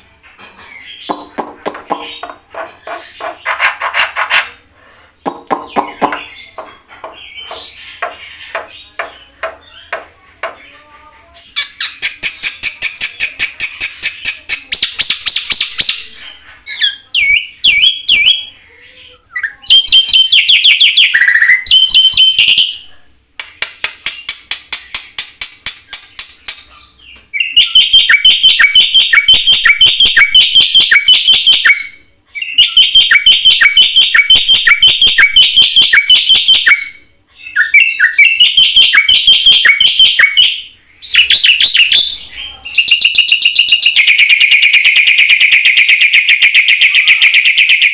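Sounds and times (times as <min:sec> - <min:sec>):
bird singing sharp repeated notes: 0:00.8 - 0:03.6, 0:05.3 - 0:09.9, 0:27.4 - 0:47.9.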